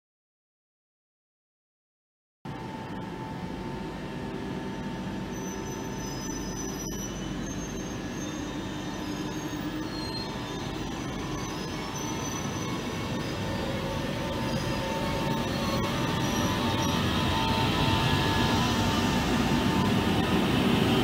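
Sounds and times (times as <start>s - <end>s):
train rumbling into platform: 2.5s - 21.0s
high wheel and brake squeals: 5.2s - 20.6s.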